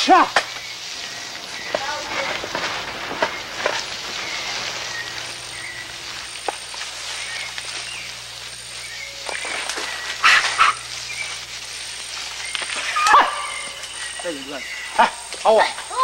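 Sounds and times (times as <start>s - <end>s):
pulsing insect-like whine: 0.0s - 16.0s.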